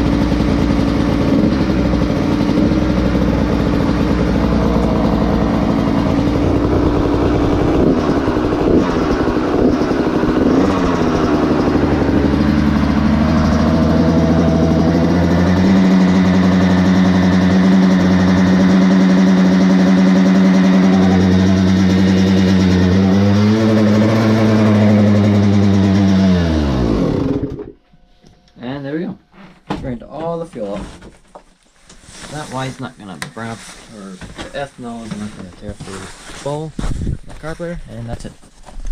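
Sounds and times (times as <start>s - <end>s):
two-stroke engine running: 0.0s - 27.8s.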